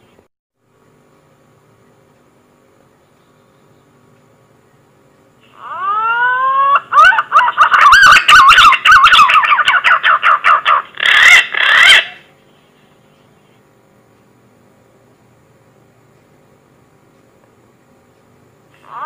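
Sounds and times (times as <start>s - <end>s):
pigeon lure call whistling: 5.5s - 12.3s.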